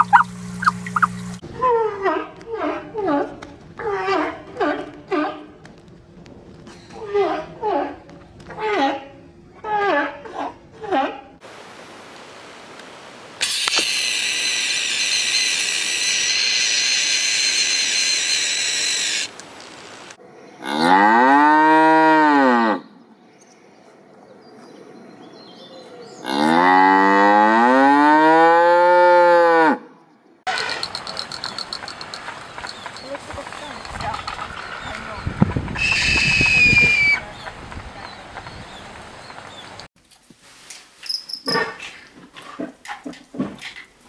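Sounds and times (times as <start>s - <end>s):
cow mooing: 20.6s - 22.8s, 26.2s - 29.8s.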